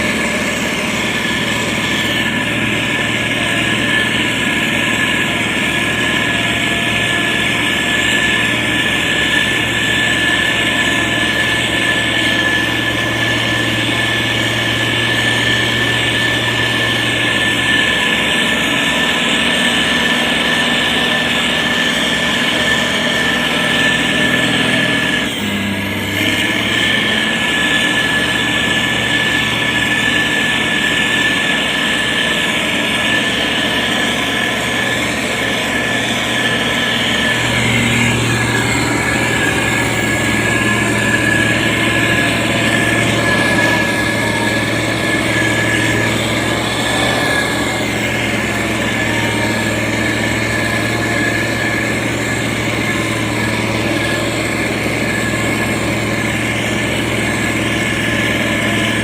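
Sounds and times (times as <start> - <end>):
diesel engine running: 0.0 - 59.0
high whine: 0.0 - 59.0.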